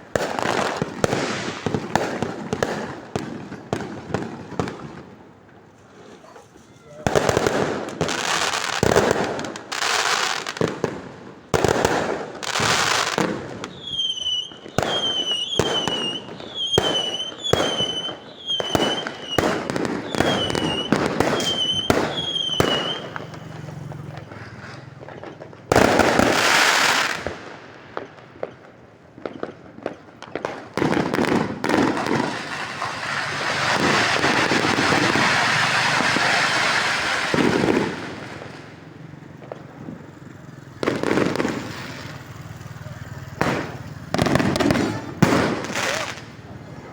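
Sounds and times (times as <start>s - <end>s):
fireworks bangs and crackles: 0.0s - 46.9s
high firework whistles: 11.5s - 27.5s, 28.1s - 40.2s, 40.8s - 46.9s.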